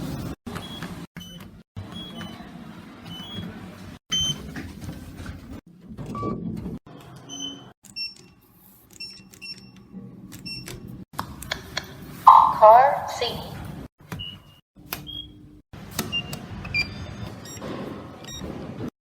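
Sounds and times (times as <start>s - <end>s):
elevator button beeps: 12.3s - 13.2s
elevator chime tones: 12.3s - 13.2s.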